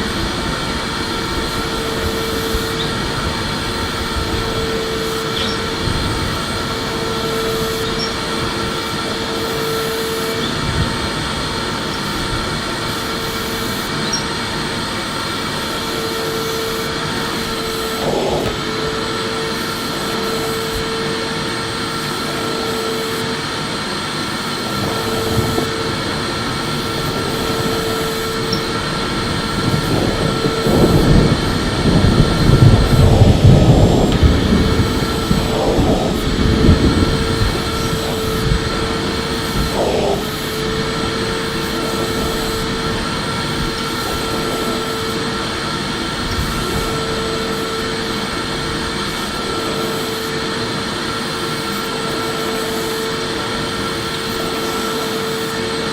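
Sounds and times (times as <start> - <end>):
vacuum cleaner running: 0.0 - 55.9
uneven low rumbling: 24.4 - 49.0.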